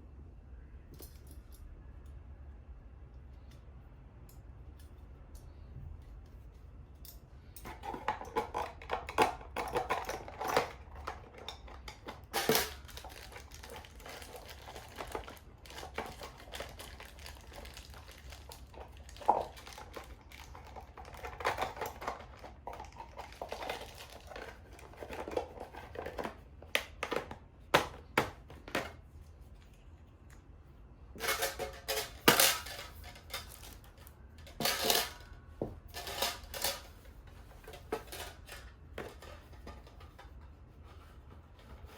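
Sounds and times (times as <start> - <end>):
metal objects clinking: 34.5 - 35.3, 35.9 - 36.9.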